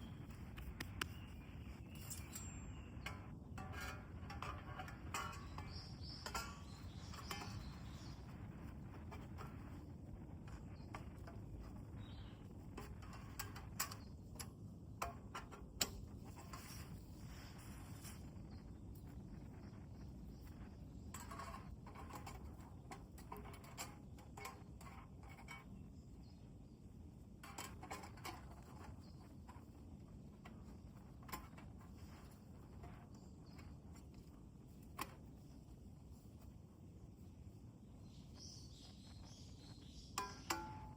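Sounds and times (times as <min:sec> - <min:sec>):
fire snaps: 0:00.2 - 0:01.2.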